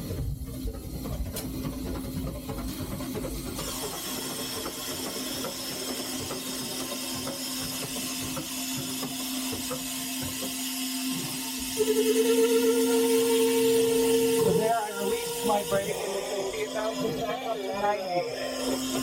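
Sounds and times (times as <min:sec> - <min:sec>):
steady hum: 0:10.2 - 0:19.0.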